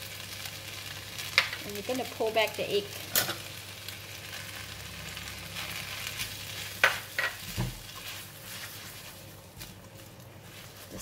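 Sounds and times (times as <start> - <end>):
food sizzling in a wok: 0.0 - 11.0
spatula stirring: 5.5 - 11.0.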